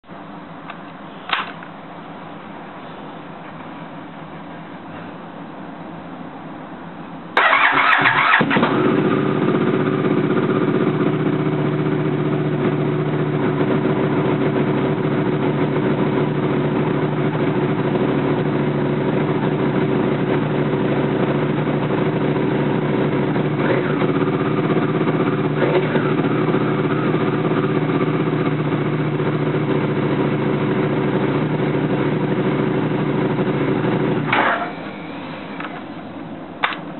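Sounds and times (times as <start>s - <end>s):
motorcycle engine starting and idling: 7.4s - 36.9s.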